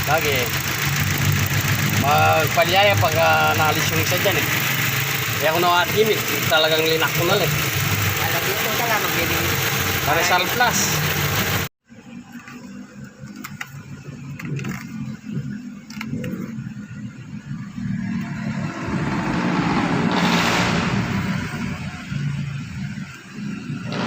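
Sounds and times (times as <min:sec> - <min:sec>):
car engine accelerating: 0:00.0 - 0:11.7, 0:16.2 - 0:24.0
rushing swell: 0:17.8 - 0:22.4.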